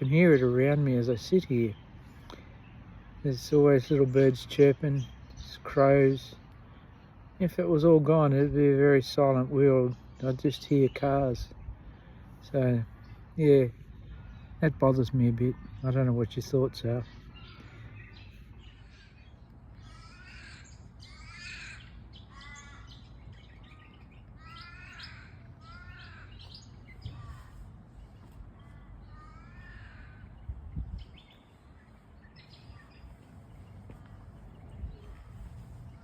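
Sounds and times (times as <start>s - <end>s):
small birds chirping: 0.0s - 36.0s
ravens cawing: 19.7s - 27.9s, 28.6s - 30.6s
steady low rumble: 26.7s - 36.0s.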